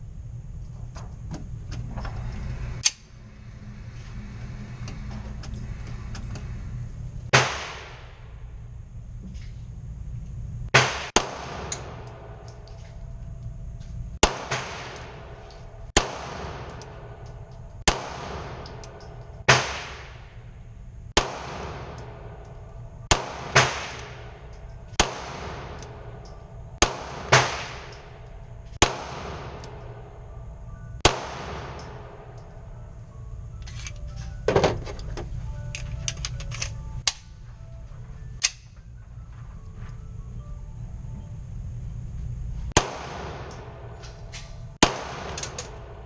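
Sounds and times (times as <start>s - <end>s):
pistol shots echoing: 10.8s - 12.4s, 14.2s - 15.4s, 16.0s - 17.2s, 17.9s - 20.2s, 21.2s - 22.4s, 23.1s - 26.2s, 26.8s - 28.2s, 28.8s - 30.0s, 31.0s - 32.4s, 42.8s - 44.0s, 44.8s - 46.0s.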